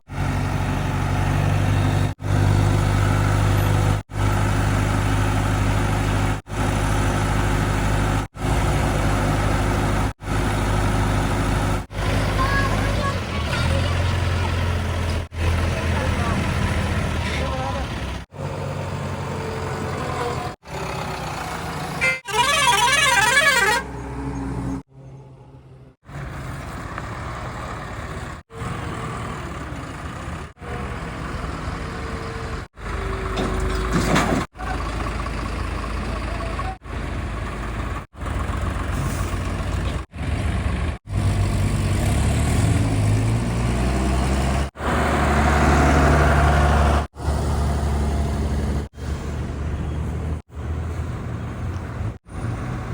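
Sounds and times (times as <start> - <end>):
heavy diesel vehicles running: 0.0 - 52.9
warbling horn: 22.0 - 24.0.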